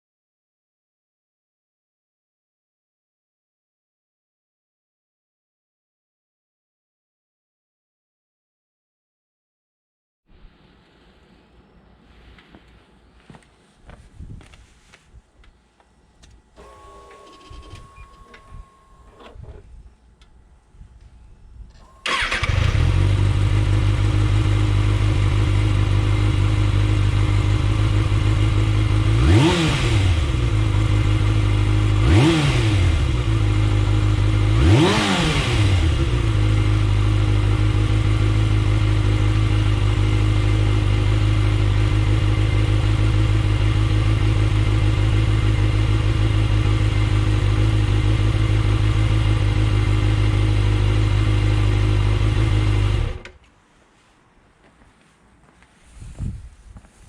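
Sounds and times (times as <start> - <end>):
motorcycle engine idling and revving: 22.0 - 53.4.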